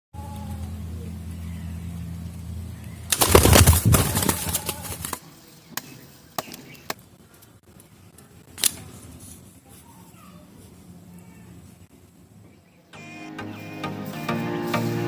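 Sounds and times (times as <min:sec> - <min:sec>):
low steady hum: 0:00.2 - 0:12.9
bird wings flapping: 0:03.1 - 0:05.3.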